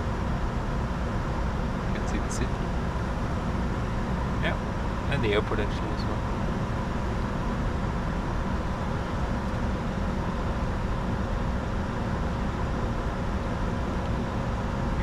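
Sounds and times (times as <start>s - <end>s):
faint steady whines: 0.0s - 15.0s.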